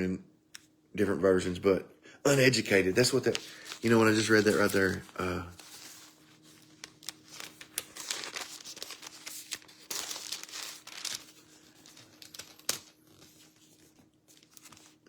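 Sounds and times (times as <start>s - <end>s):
thin pages rustling: 3.0s - 15.0s.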